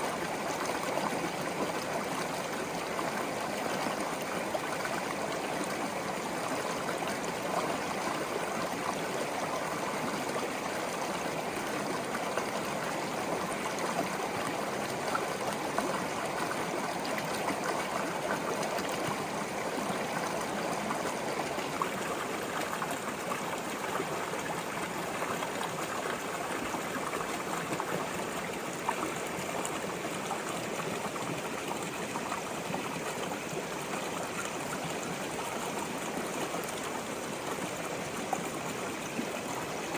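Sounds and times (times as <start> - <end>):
brook trickling over stones: 0.0 - 39.9.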